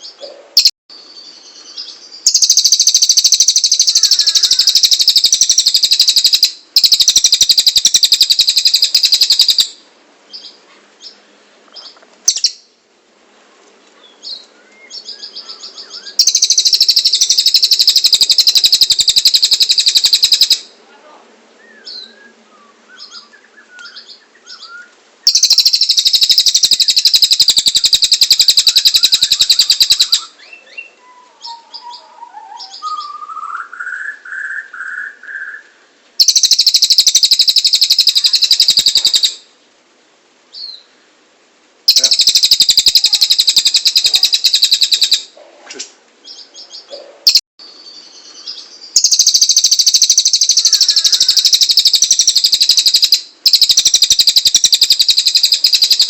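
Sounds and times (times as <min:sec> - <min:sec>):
low bird warbling: 0:00.0 - 0:09.7, 0:14.2 - 0:20.7, 0:21.6 - 0:39.4, 0:41.9 - 0:45.4, 0:46.2 - 0:56.0
soft bird chirps: 0:00.0 - 0:09.7, 0:10.3 - 0:12.7, 0:14.0 - 0:20.6, 0:21.6 - 0:39.6, 0:46.2 - 0:56.0
bird rapid high trills: 0:02.3 - 0:09.8, 0:15.4 - 0:20.7, 0:25.2 - 0:30.4, 0:36.2 - 0:39.4, 0:41.9 - 0:45.3, 0:49.0 - 0:56.0.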